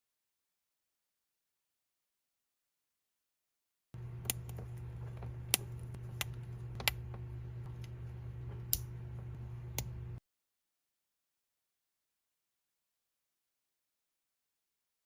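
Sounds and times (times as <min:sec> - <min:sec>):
low hum: 0:04.0 - 0:10.2.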